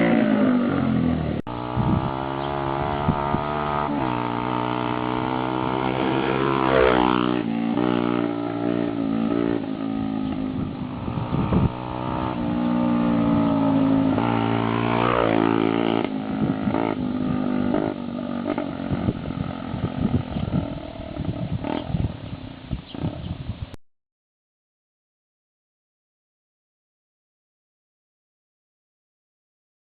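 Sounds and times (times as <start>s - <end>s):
motorcycle engine revving: 0.0s - 22.2s, 22.8s - 23.4s.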